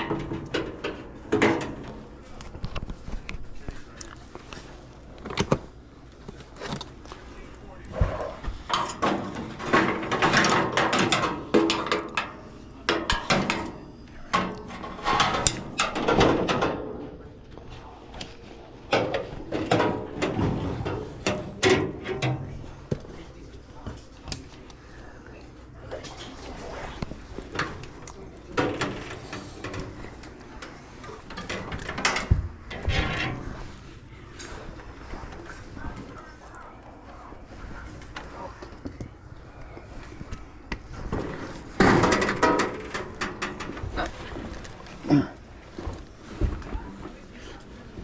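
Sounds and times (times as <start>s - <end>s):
metal tools clicking and clattering: 8.7s - 17.2s.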